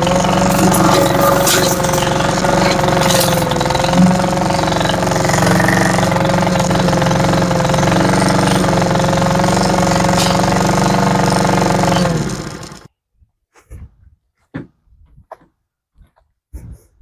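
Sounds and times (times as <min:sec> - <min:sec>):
lawn mower engine running: 0:00.0 - 0:12.9.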